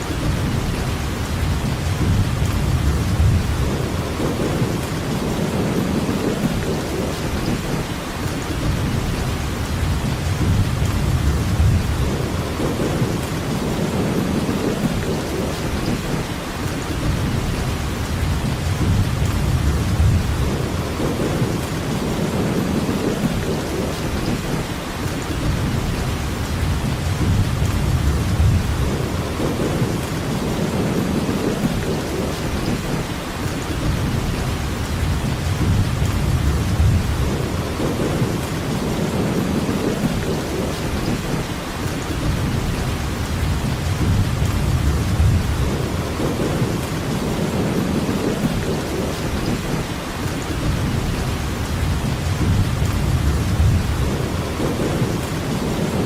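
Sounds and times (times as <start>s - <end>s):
heavy rainfall: 0.0s - 56.0s.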